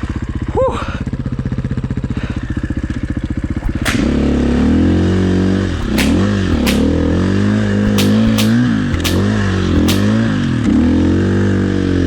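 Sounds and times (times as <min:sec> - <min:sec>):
sharp clicks: 0:03.6 - 0:04.1, 0:05.8 - 0:06.9, 0:07.8 - 0:10.1.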